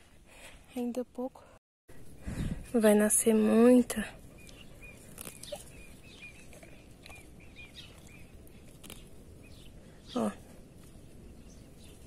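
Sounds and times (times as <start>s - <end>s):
small birds chirping: 2.2s - 12.0s
high falling bird calls: 4.3s - 12.0s.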